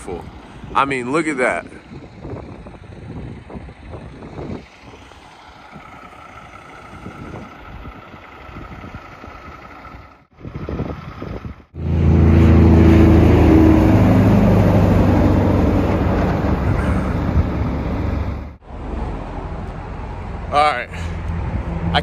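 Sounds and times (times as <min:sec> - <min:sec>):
truck diesel engine running: 0:01.8 - 0:19.4.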